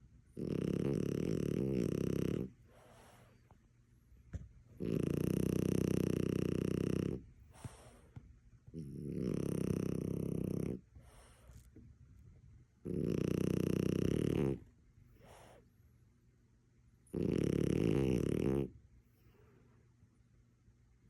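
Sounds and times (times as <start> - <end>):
dog snoring: 0.3 - 3.3, 4.8 - 8.1, 8.7 - 11.7, 12.8 - 15.6, 17.1 - 18.8
faint breaths: 2.5 - 3.6, 7.4 - 8.3, 10.9 - 11.8, 15.1 - 15.8.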